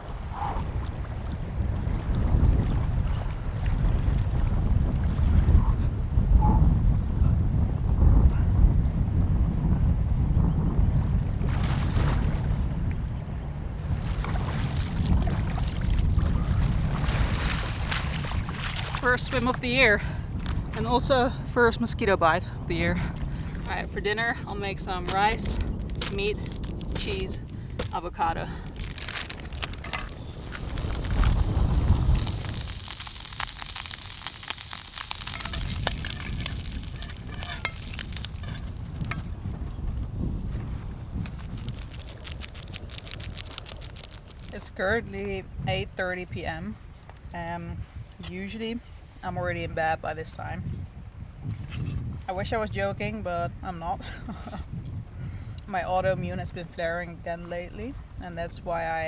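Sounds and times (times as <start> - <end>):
wind on microphone: 0.0 - 59.0
person splashing in water: 14.0 - 19.1, 28.7 - 39.2
food sizzling in a frying pan: 29.8 - 39.2.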